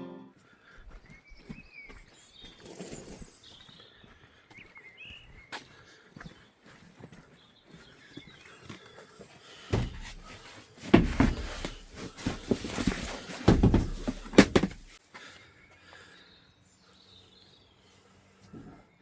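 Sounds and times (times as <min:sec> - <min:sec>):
heavy thumps and knocks: 0:09.7 - 0:15.0.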